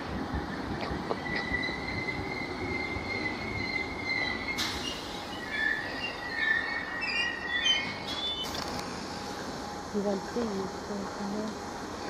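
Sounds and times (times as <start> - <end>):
low rumble of train: 0.0 - 12.0
train wheels squealing: 1.1 - 8.6.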